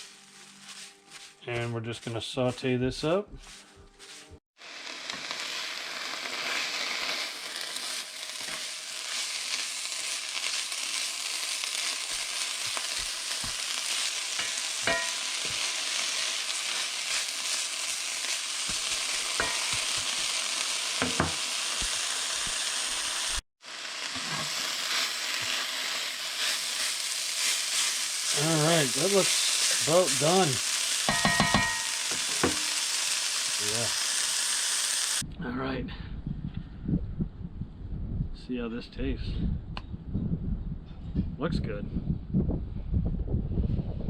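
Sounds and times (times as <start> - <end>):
food sizzling in a pan: 0.0 - 1.4, 3.4 - 35.2
utensil knocking against pan: 31.1 - 32.7.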